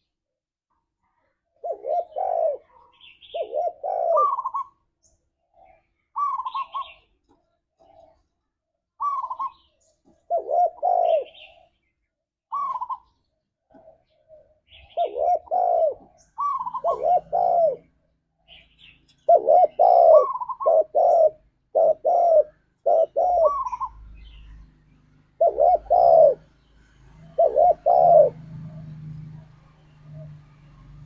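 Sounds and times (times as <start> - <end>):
dove cooing: 1.6 - 4.8, 5.5 - 7.1, 7.8 - 8.3, 9.0 - 11.7, 12.5 - 13.1, 13.7 - 17.9, 18.8 - 24.6, 25.4 - 26.5, 27.2 - 31.0.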